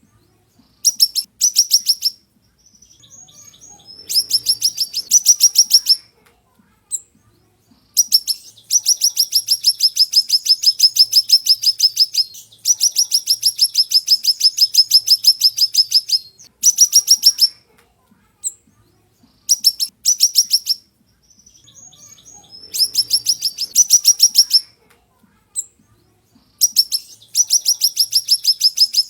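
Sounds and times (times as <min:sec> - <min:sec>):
songbird singing fast high trills: 0:02.8 - 0:06.0, 0:08.0 - 0:17.5, 0:19.5 - 0:24.7, 0:26.6 - 0:29.0.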